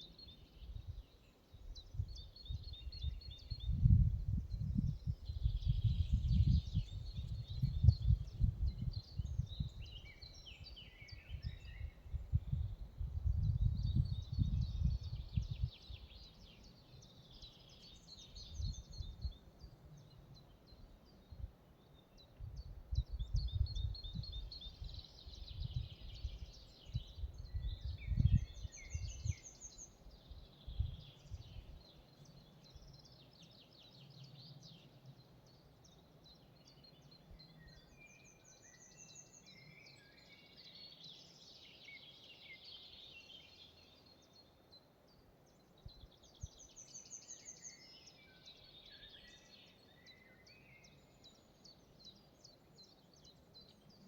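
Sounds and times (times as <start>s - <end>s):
songbirds singing: 0.0s - 54.0s
wind rumbling on microphone: 0.5s - 16.6s, 17.3s - 20.1s, 22.4s - 31.9s.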